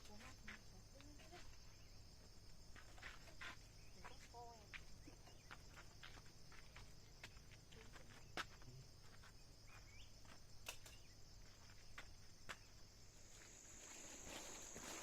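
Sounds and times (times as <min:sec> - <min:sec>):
insect chirring: 0:08.2 - 0:15.0
rustling: 0:13.3 - 0:15.0.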